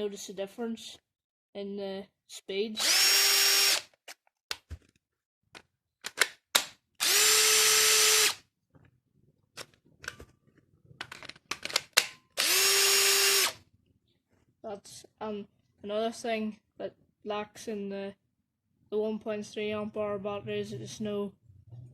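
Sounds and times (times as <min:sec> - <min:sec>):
impact driver whining: 0:07.0 - 0:08.4, 0:12.4 - 0:13.6
clicks and handling knocks: 0:09.6 - 0:12.3.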